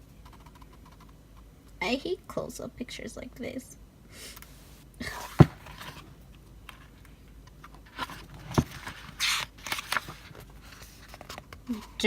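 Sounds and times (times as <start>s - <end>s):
paper pages rustling: 5.1s - 6.1s, 7.9s - 11.9s.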